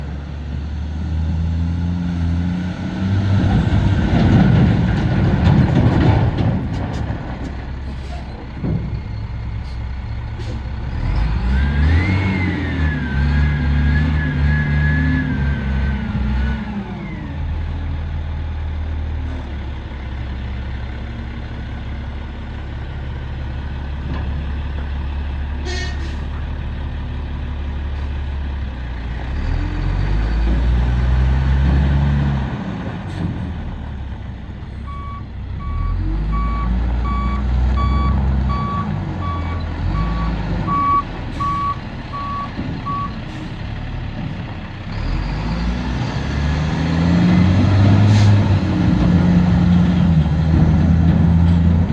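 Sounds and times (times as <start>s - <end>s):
diesel truck engine revving: 0.0s - 7.6s, 9.6s - 18.9s, 29.1s - 33.9s, 34.9s - 51.9s
reversing alarm beeping: 34.9s - 43.1s.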